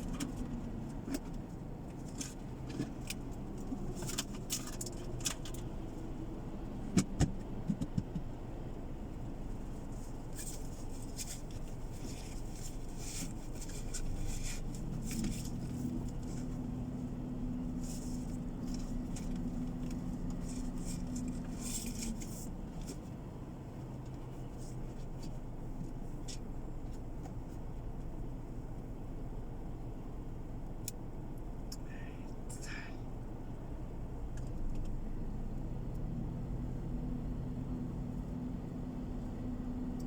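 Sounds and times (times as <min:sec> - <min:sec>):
light clicks and rattles: 0:00.0 - 0:06.1
road and engine rumble: 0:00.0 - 0:40.0.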